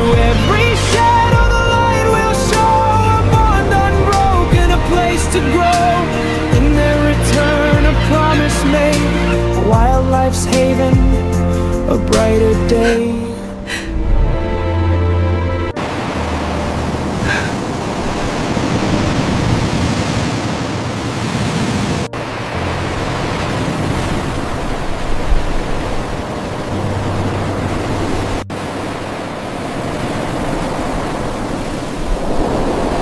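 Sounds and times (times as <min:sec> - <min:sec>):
ocean surf on shore: 0:15.8 - 0:33.0.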